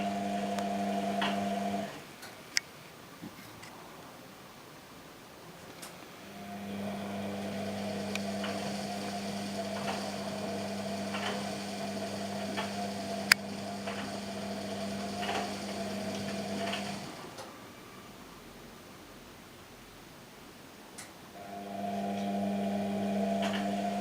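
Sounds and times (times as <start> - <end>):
washing machine motor humming: 0.0 - 2.2, 6.2 - 17.5, 21.4 - 24.0.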